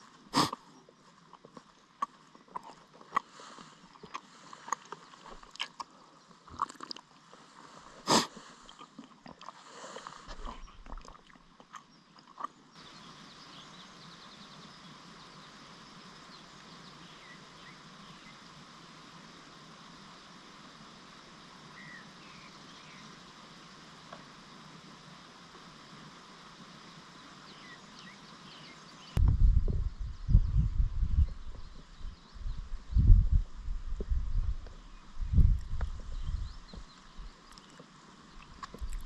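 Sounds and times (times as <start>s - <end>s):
steady hiss: 0.0s - 2.0s, 3.1s - 10.7s, 12.8s - 39.0s.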